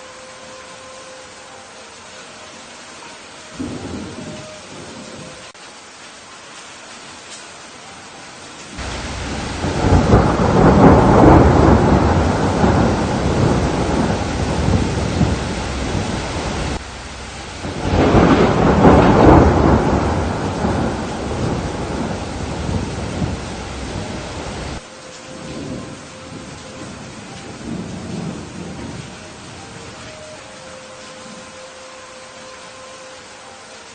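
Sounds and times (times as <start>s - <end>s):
steady rain: 0.0s - 33.9s
thunder rolling: 8.8s - 29.9s.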